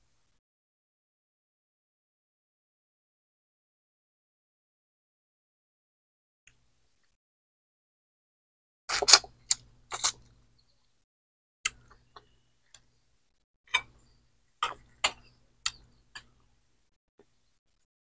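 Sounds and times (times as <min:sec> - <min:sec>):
person chewing crunchy food: 0:08.9 - 0:10.3.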